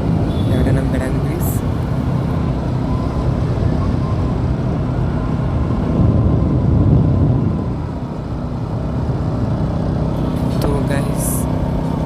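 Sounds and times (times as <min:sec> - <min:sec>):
motorcycle engine rumble: 0:00.0 - 0:12.0
wind on microphone: 0:03.3 - 0:10.7.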